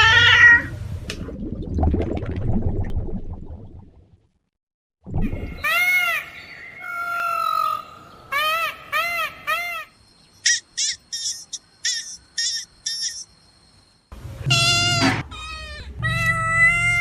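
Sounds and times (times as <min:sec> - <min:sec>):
loud bird calls: 0:05.6 - 0:13.4.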